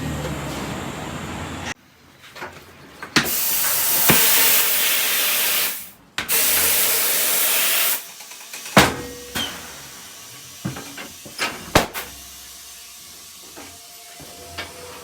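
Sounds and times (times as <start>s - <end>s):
compressed air hissing: 3.2s - 8.5s.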